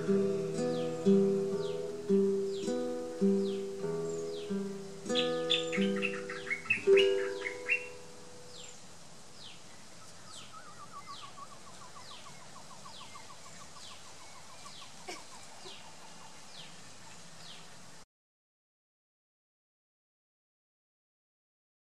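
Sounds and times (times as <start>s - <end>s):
guitar chord and voice: 0.0s - 7.8s
bird high falling chirp: 3.4s - 8.8s
bird rapid run of lower notes: 5.1s - 8.0s.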